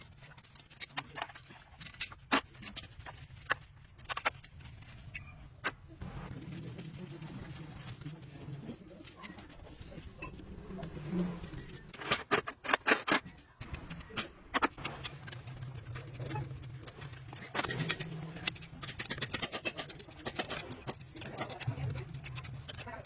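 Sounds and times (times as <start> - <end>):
metal scraping: 13.9 - 23.0.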